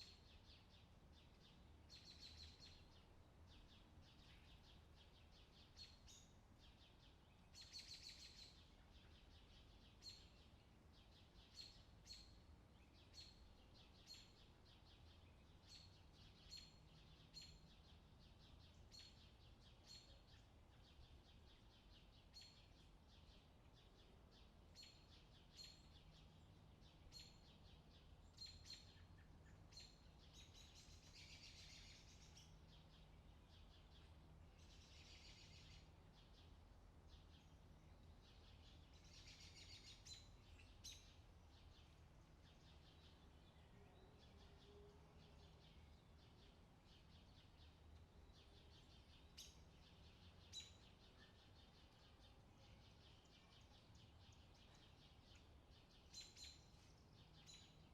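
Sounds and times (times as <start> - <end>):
faint low hum: 0.0 - 57.9
bird chirps and trills: 37.2 - 57.9.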